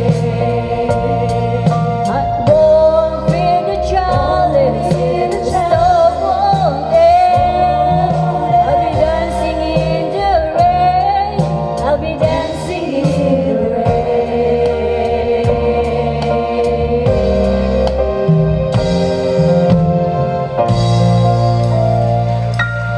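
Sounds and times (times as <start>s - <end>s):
woman singing with vibrato: 0.0s - 15.9s
instrumental backing track: 0.0s - 22.9s.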